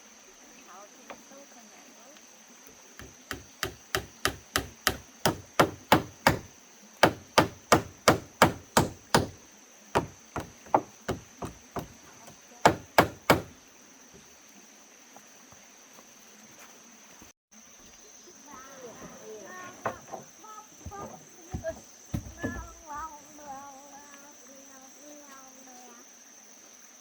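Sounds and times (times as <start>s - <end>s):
hammer striking wood: 3.0s - 9.4s, 10.0s - 13.5s, 19.8s - 22.7s.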